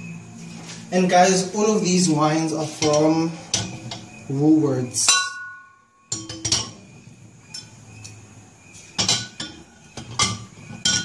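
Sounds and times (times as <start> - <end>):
glass bottles clinking: 5.0 - 7.8, 8.9 - 11.0.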